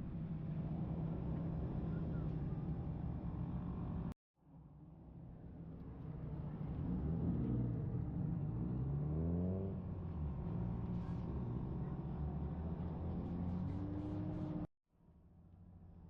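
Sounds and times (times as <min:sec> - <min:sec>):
engine revving: 0:06.7 - 0:14.7.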